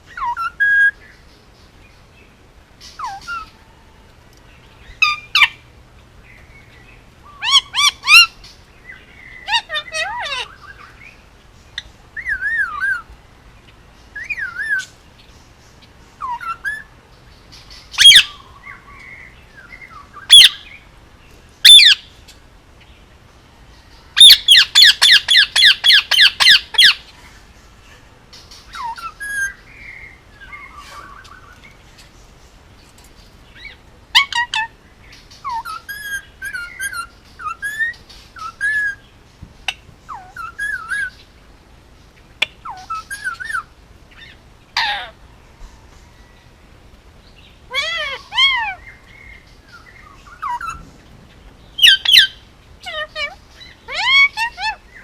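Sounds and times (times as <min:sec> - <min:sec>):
parakeet chirping and whistling: 0:07.4 - 0:08.3, 0:20.2 - 0:20.6, 0:24.2 - 0:27.0, 0:40.1 - 0:41.1, 0:51.8 - 0:54.8
parakeet loud squawks: 0:09.4 - 0:10.6, 0:24.2 - 0:27.0, 0:44.2 - 0:45.2, 0:47.7 - 0:48.8, 0:51.8 - 0:54.8
parakeet shrieks: 0:09.5 - 0:10.5, 0:47.7 - 0:48.8, 0:52.9 - 0:54.8.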